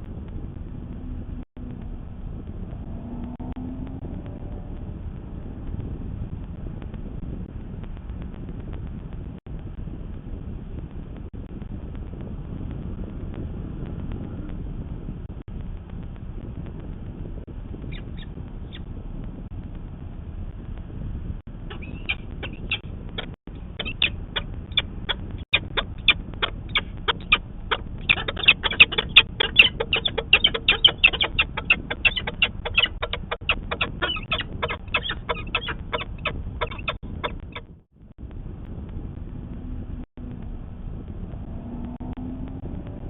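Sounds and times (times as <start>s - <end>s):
steady low rumble: 0.0s - 43.0s
falcon alarm call: 21.7s - 37.6s.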